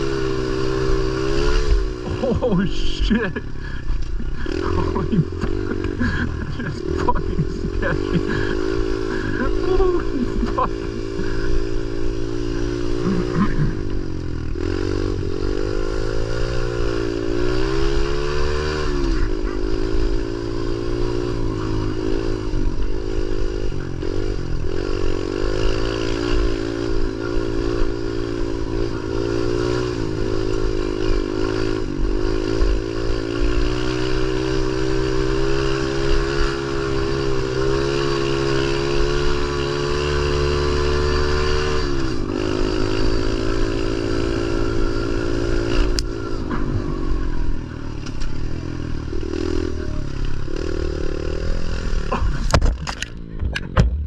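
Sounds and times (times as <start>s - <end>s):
pit bike engine revving: 0.0s - 54.0s.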